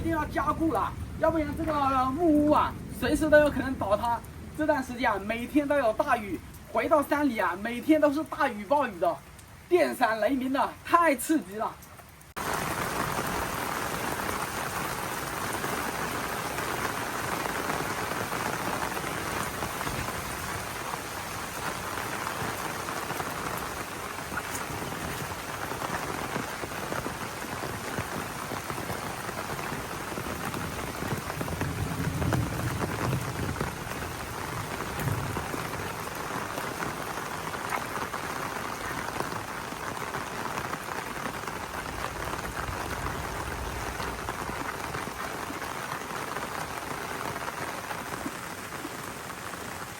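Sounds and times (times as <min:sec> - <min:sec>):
low rumble of thunder: 0:00.0 - 0:06.0, 0:27.1 - 0:37.7, 0:41.4 - 0:45.7
heavy rain pouring: 0:00.0 - 0:49.9.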